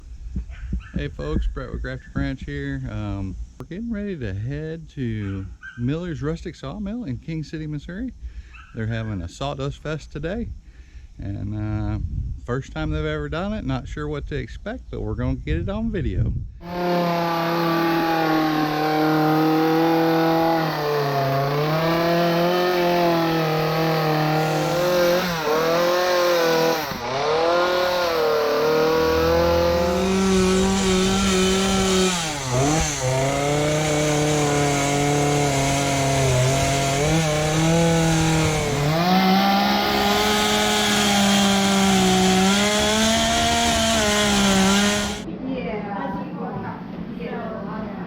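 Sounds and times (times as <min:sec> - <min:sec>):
chainsaw cutting wood: 0:16.6 - 0:45.2.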